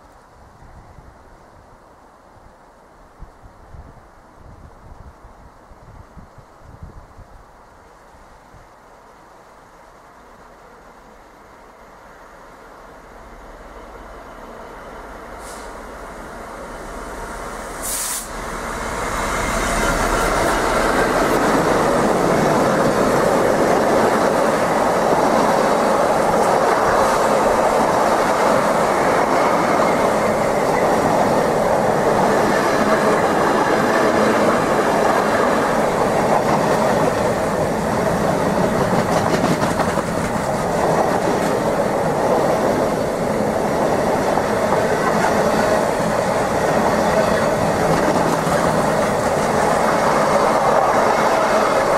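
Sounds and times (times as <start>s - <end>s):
train rumbling past: 9.0s - 51.9s
brief sharp noise: 17.8s - 18.4s.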